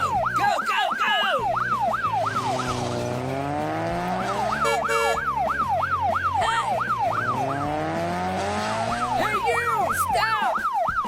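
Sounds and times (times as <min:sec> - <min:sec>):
police siren yelping: 0:00.0 - 0:11.0
siren steady blast: 0:00.0 - 0:11.0
engine drone: 0:01.6 - 0:09.2.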